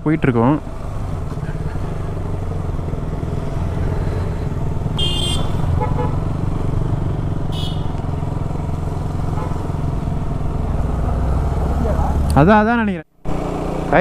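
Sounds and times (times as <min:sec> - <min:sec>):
motorcycle engine running: 0:00.0 - 0:14.0
high-pitched horn toots: 0:05.0 - 0:06.2, 0:07.5 - 0:08.0.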